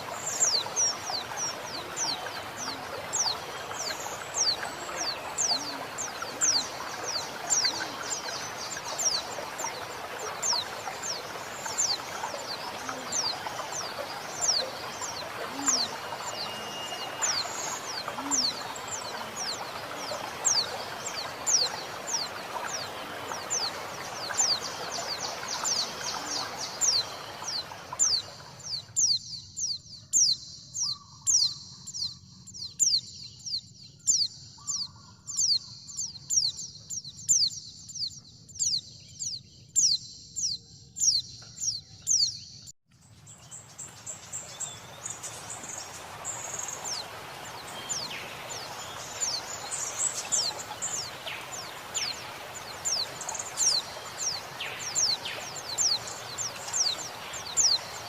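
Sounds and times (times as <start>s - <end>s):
flowing water: 0.0s - 29.8s, 43.2s - 58.0s.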